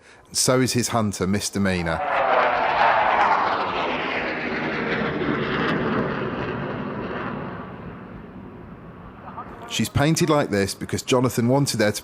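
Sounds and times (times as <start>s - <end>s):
jet making a fast pass: 1.9s - 11.2s.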